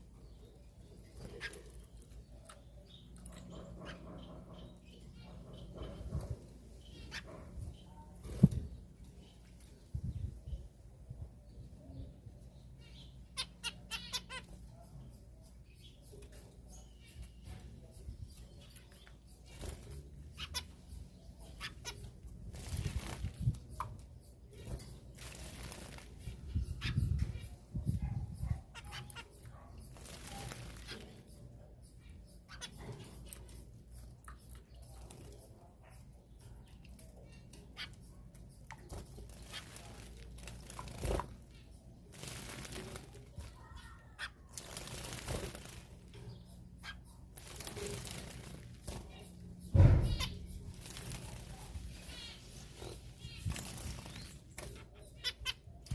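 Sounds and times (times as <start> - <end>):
birds chirping: 0.0 - 55.9
wings fluttering: 21.6 - 23.9, 24.5 - 27.5, 29.9 - 31.2, 38.9 - 54.8
wings fluttering in water: 25.1 - 26.2, 30.0 - 31.1, 39.0 - 43.6, 44.5 - 46.0, 47.4 - 49.1, 53.2 - 54.3.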